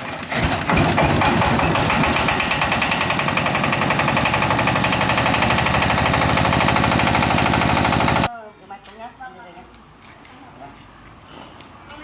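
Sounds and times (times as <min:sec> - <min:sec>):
small sprayer engine running: 0:00.1 - 0:08.3.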